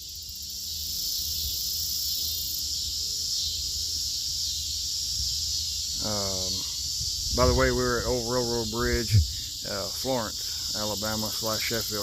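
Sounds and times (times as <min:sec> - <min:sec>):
insect chorus buzzing: 0:00.0 - 0:12.0
low rumble: 0:07.0 - 0:09.4.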